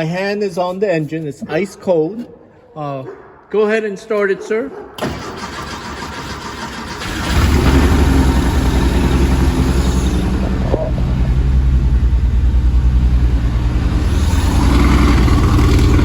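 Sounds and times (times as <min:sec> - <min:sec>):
car engine idling: 0:05.0 - 0:16.0.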